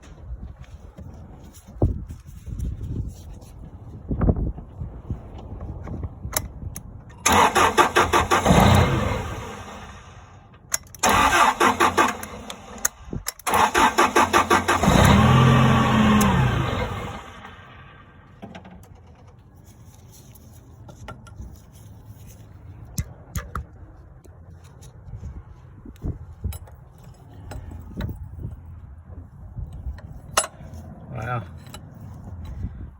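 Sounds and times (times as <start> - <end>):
engine starter cranking: 7.2 - 10.2, 10.9 - 17.8
engine firing and revving: 7.2 - 10.3, 11.0 - 18.2.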